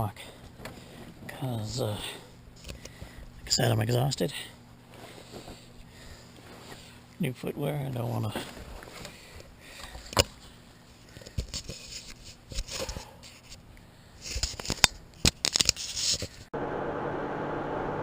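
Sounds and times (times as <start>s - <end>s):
handling clicks and rustles: 7.9s - 16.5s
motorcycle riding on road: 16.6s - 18.0s.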